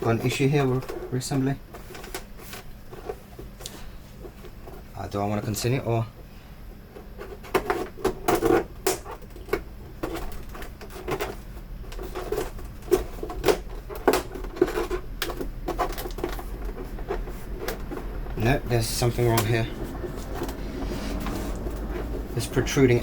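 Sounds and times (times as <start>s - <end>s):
plastic handling noise: 0.0s - 5.0s, 6.9s - 23.0s
plastic parts clicking and knocking: 7.0s - 20.6s.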